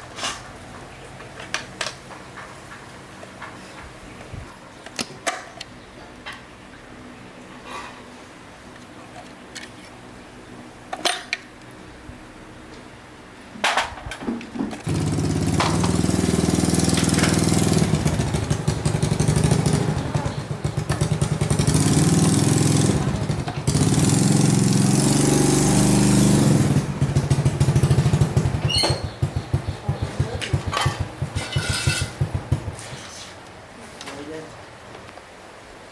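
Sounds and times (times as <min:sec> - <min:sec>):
motorbike engine revving: 0:14.8 - 0:32.9
motorbike engine sputtering: 0:14.8 - 0:32.9.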